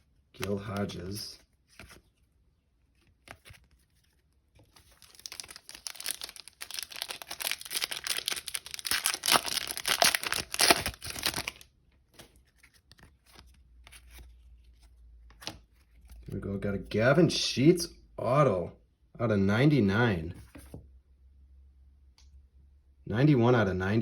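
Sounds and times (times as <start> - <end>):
foil wrapper tearing and crinkling: 4.8 - 11.6.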